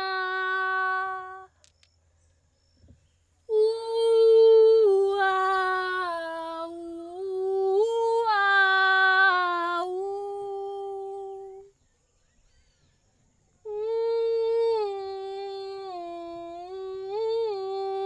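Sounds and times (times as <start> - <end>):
women singing wordless notes: 0.0 - 1.5, 3.5 - 11.7, 13.7 - 18.0.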